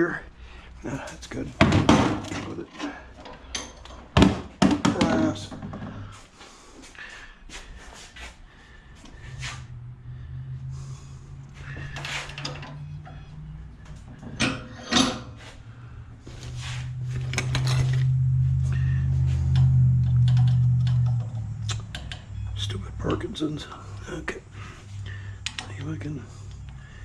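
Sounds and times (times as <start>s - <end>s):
metal scrap clicks and knocks: 13.8s - 15.4s, 17.2s - 18.2s, 19.5s - 22.6s.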